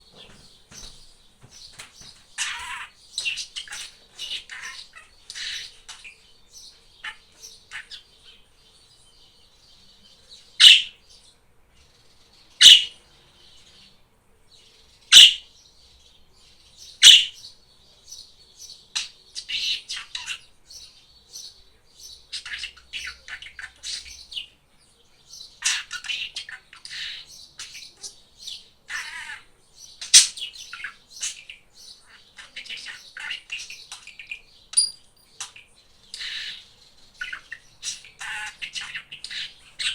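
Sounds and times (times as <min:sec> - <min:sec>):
budgerigar chattering: 0:01.6 - 0:08.4, 0:10.6 - 0:11.0, 0:12.6 - 0:13.0, 0:15.1 - 0:15.5, 0:16.9 - 0:17.5, 0:18.9 - 0:21.5, 0:22.1 - 0:24.5, 0:25.3 - 0:39.9
budgerigar sharp calls: 0:02.0 - 0:06.2, 0:10.6 - 0:11.0, 0:12.6 - 0:13.0, 0:15.1 - 0:15.5, 0:17.0 - 0:17.5, 0:25.4 - 0:35.6, 0:36.2 - 0:39.9.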